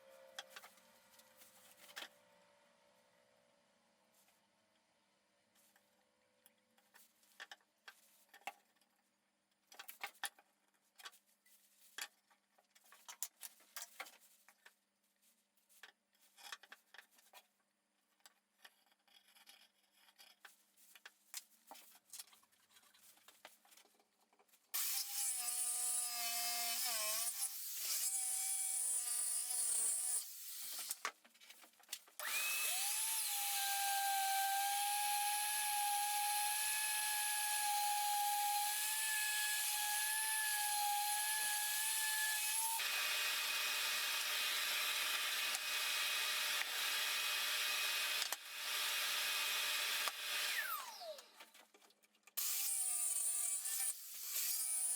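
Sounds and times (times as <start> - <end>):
electric power tool whining: 32.2 - 51.4.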